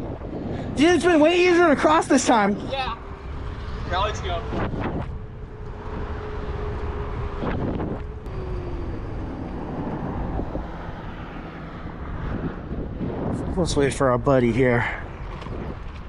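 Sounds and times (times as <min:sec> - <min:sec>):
wind buffeting microphone: 0:00.0 - 0:16.0
electric motor whine: 0:03.0 - 0:12.1.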